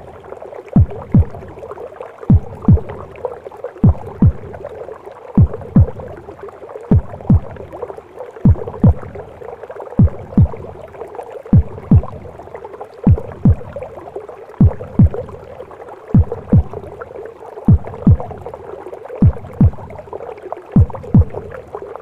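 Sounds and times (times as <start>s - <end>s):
slow heartbeat thumps: 0.8s - 1.6s, 2.3s - 3.1s, 3.8s - 4.7s, 5.4s - 6.2s, 6.9s - 7.8s, 8.4s - 9.3s, 10.0s - 10.9s, 11.5s - 12.4s, 13.1s - 13.9s, 14.6s - 15.5s, 16.2s - 17.0s, 17.7s - 18.5s, 19.2s - 20.0s, 20.7s - 21.6s.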